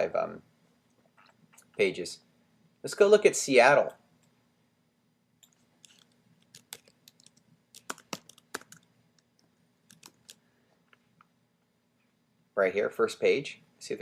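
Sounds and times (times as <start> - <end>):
computer keyboard key clicks: 5.4 - 8.8, 9.9 - 10.4.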